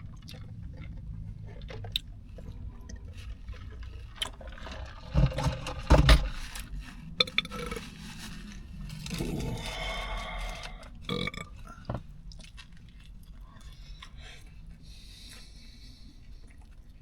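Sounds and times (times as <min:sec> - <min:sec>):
chewing and wet mouth noises: 0:00.0 - 0:04.4, 0:08.4 - 0:17.0.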